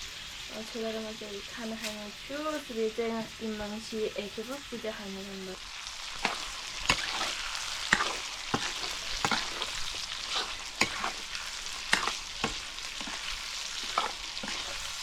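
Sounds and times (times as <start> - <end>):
curry sizzling in a pan: 0.0 - 15.0
spoon knocking and scraping pan: 6.2 - 15.0.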